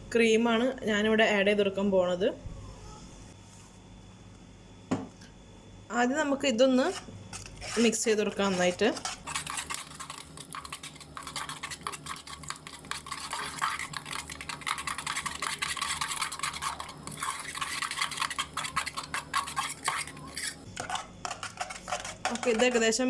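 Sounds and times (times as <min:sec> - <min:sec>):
utensil scraping a pan: 0:06.8 - 0:23.0.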